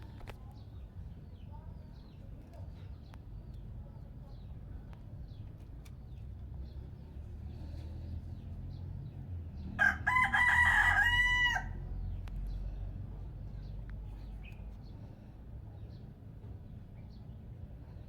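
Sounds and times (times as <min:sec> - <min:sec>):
rooster crowing: 0:09.8 - 0:11.8.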